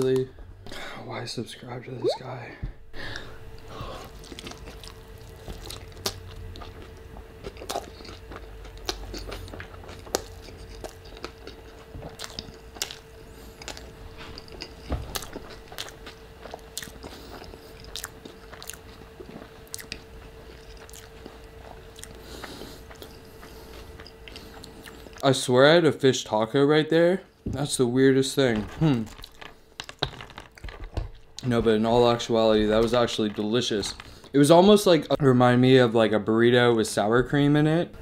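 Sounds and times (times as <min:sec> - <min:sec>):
faint steady hum: 0:00.0 - 0:38.0
chewing with mouth clicks: 0:04.0 - 0:25.2.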